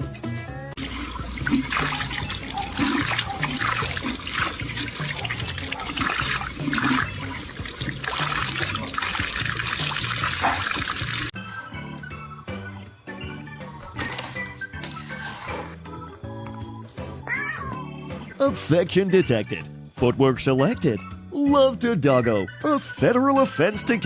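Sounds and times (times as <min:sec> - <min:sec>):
background music: 0:00.0 - 0:24.0
running water: 0:00.8 - 0:11.3.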